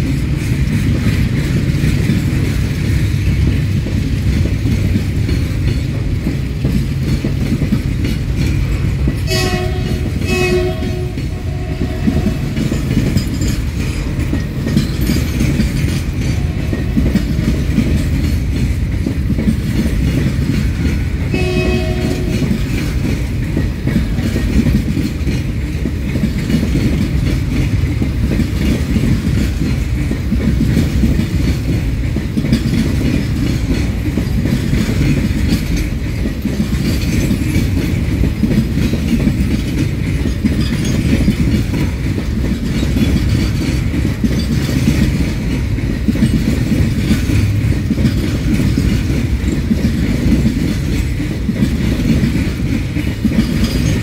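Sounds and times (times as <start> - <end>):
train wheels rumbling on rails: 0.0 - 54.0
train horn blasts: 9.2 - 12.8, 21.3 - 22.8.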